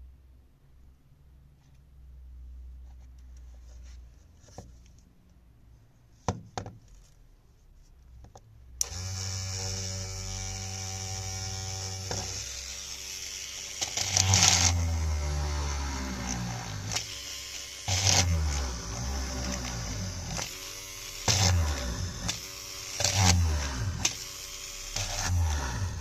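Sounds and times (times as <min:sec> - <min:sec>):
drill motor whining: 0:08.8 - 0:26.0.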